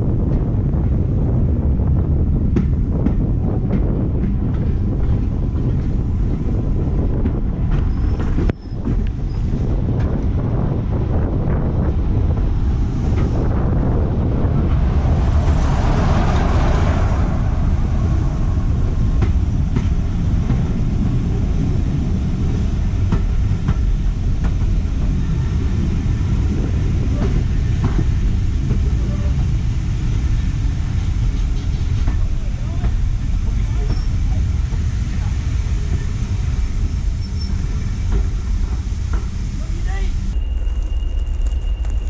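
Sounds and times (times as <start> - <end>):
train rumbling: 0.0 - 42.0
hissing rush: 12.4 - 40.4.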